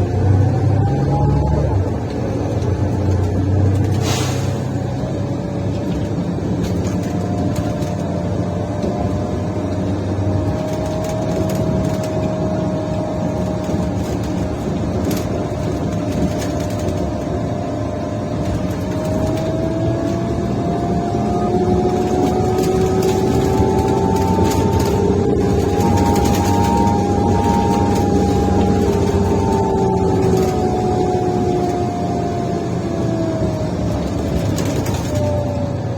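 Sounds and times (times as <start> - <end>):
bus engine and drivetrain: 0.0 - 35.9.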